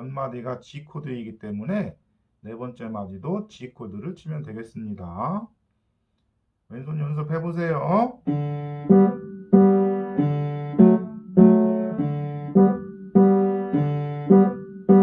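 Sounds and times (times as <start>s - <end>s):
piano block chords: 8.2s - 15.0s.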